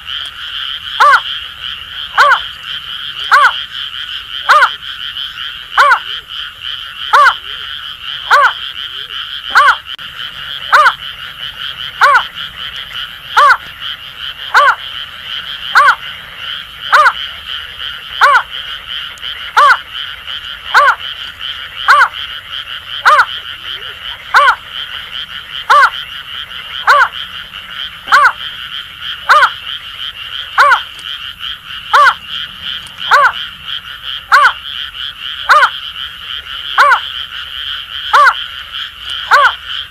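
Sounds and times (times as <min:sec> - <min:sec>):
frogs calling in rapid rattle: 0:00.0 - 0:39.9
bird hooting call: 0:08.3 - 0:09.8, 0:10.7 - 0:11.0, 0:31.9 - 0:33.4.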